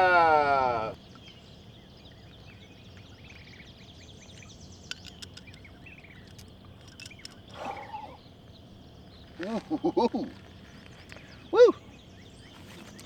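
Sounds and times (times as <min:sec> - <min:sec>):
outdoor background noise: 0:00.0 - 0:13.0
small birds twittering: 0:00.0 - 0:13.0
sharp clicks: 0:04.4 - 0:07.5.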